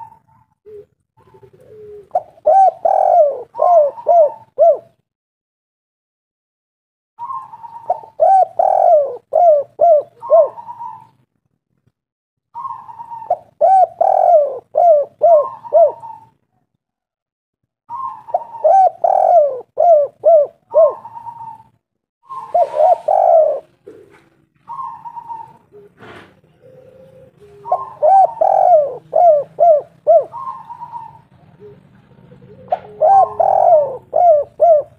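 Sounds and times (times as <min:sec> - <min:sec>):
dove cooing: 0:00.0 - 0:05.0, 0:07.2 - 0:11.2, 0:12.6 - 0:16.6, 0:17.9 - 0:34.9
brief hiss: 0:26.0 - 0:26.4.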